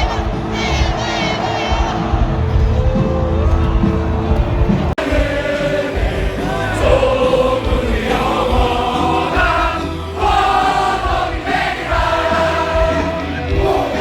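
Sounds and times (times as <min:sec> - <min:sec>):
group of voices singing: 0:05.0 - 0:14.0.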